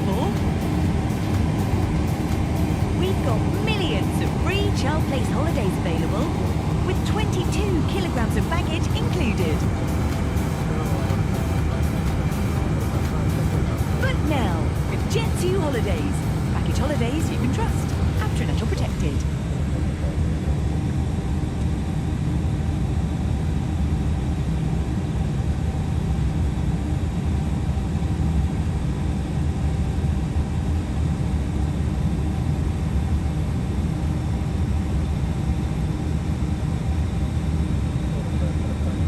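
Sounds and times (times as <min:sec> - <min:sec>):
jet engines roaring: 0:00.0 - 0:23.4.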